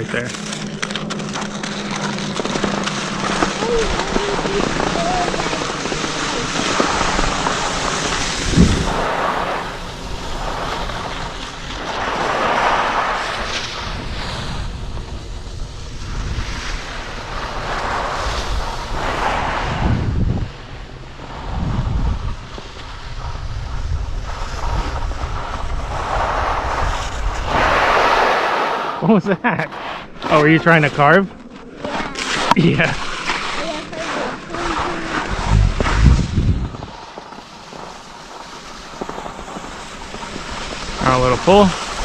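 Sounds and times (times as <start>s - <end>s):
skis sliding on snow: 0.0s - 20.1s, 20.8s - 42.0s
wind buffeting microphone: 1.5s - 11.8s, 13.2s - 28.4s, 32.4s - 37.8s.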